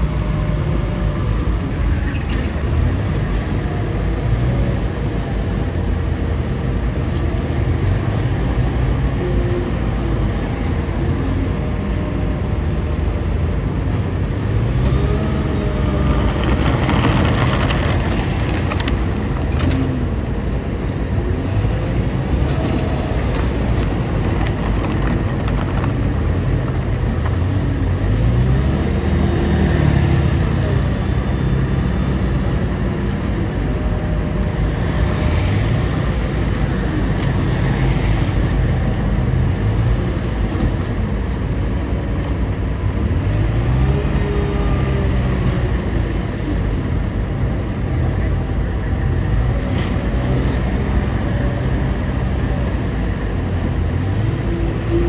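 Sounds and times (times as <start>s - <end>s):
bulldozer diesel engine revving: 0.0s - 55.0s.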